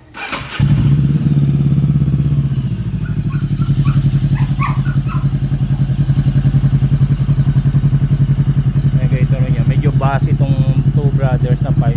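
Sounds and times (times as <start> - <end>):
motorcycle engine idling: 0.2 - 11.9
dog barking: 2.5 - 6.0.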